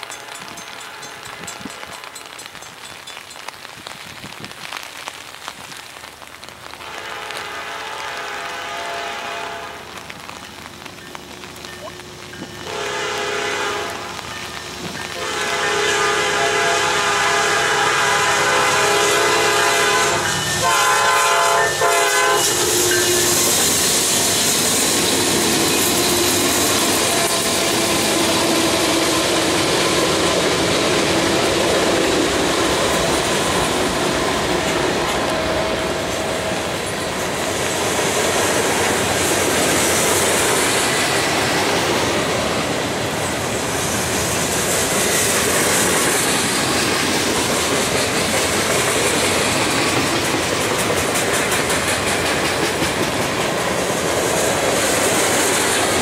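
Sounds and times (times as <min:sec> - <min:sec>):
diesel locomotives passing: 0:00.0 - 0:03.4, 0:06.8 - 0:56.0
locomotive horn blasts: 0:06.8 - 0:10.0, 0:12.6 - 0:14.3, 0:15.1 - 0:23.5.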